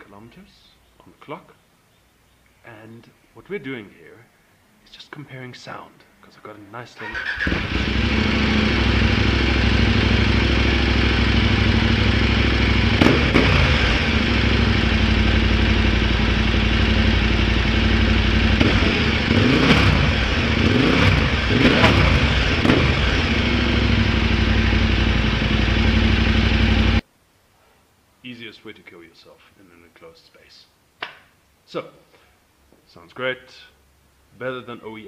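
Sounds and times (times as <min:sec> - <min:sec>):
engine throttle blips: 0:07.1 - 0:27.0
motorcycle engine idling: 0:07.7 - 0:27.0.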